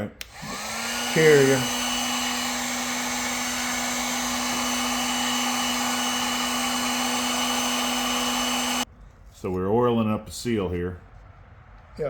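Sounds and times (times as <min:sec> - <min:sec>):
heat gun blowing: 0:00.1 - 0:08.9.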